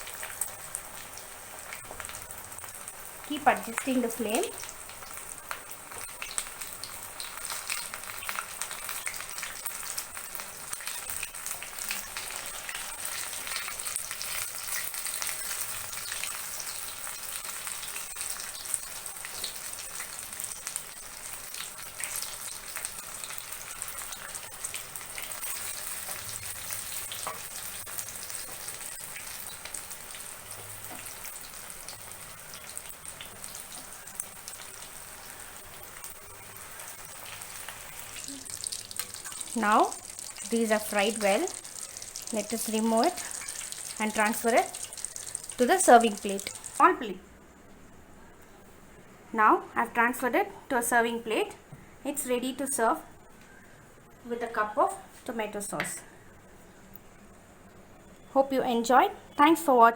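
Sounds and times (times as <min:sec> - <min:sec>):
deep-frying in hot oil: 0:00.0 - 0:47.5.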